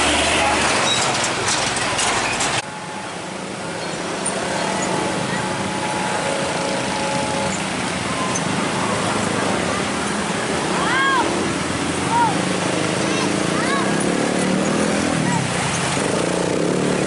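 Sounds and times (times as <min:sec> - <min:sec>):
train rail clatter: 0:00.0 - 0:02.8
road traffic engines: 0:00.0 - 0:17.0.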